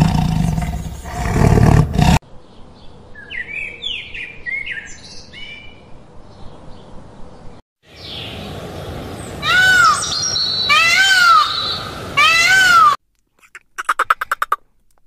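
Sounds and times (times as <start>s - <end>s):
peacock wailing calls: 9.4s - 13.0s.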